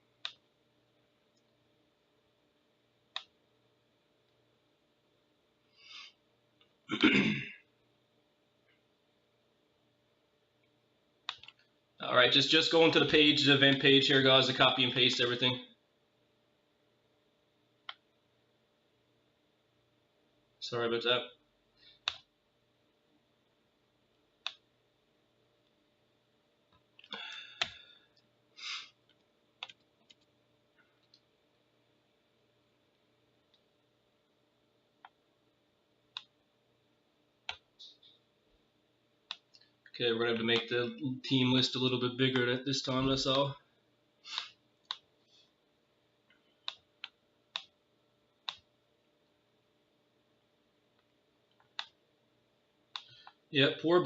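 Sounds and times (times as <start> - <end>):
computer mouse clicks: 0.2 - 0.5, 3.1 - 3.4, 11.2 - 11.7, 17.8 - 18.1, 21.9 - 22.3, 24.4 - 24.6, 29.0 - 30.3, 36.1 - 36.4, 37.4 - 38.2, 39.2 - 39.9, 44.3 - 45.1, 46.3 - 47.8, 48.4 - 48.7, 51.0 - 52.0, 52.9 - 53.4.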